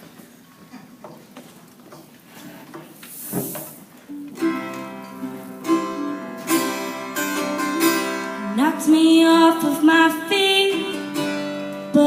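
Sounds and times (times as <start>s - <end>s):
acoustic guitar strumming chords: 4.1s - 12.0s.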